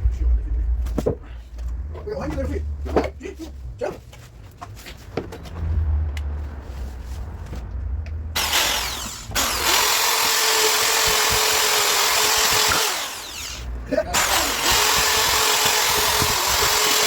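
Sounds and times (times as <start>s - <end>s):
electric power tool running: 8.4s - 17.0s.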